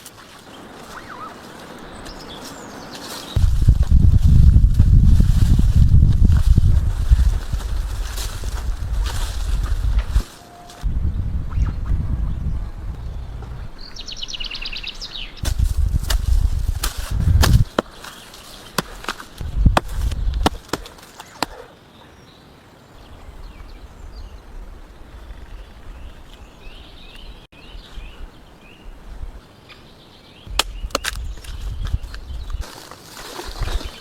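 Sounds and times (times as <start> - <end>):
birds chirping faintly: 0.0 - 3.6, 7.6 - 15.9, 17.6 - 34.0
sharp knocks with low thuds: 3.4 - 10.2, 15.4 - 18.0, 18.8 - 21.6.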